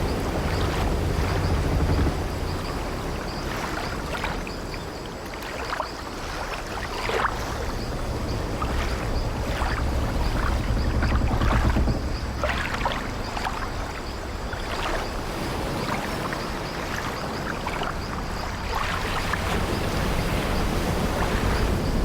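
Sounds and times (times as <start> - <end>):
waves washing against ship: 0.0 - 22.0
low rumble: 7.4 - 15.3
wooden ship timbers creaking: 8.8 - 13.6.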